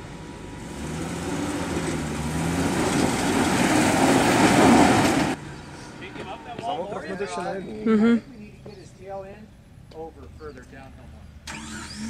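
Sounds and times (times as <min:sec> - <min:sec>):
engine revving hard: 0:00.6 - 0:05.4, 0:11.4 - 0:12.0.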